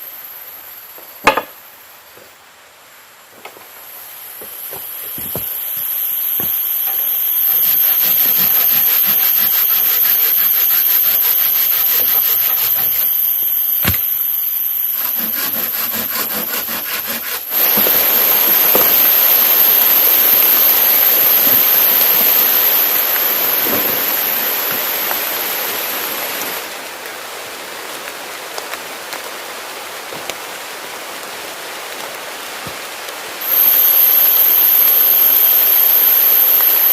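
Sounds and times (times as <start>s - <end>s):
heavy rain hiss: 0.0s - 36.9s
hand saw cutting wood: 7.8s - 14.0s, 14.9s - 17.9s.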